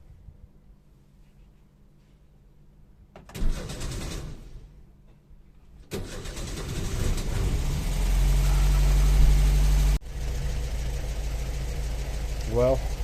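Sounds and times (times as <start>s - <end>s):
air-cooled engine running: 5.9s - 13.0s.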